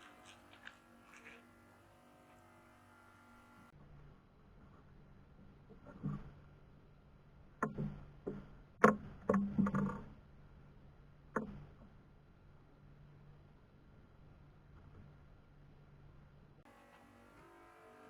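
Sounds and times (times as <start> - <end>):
sharp knocks and clatters: 7.6 - 10.1.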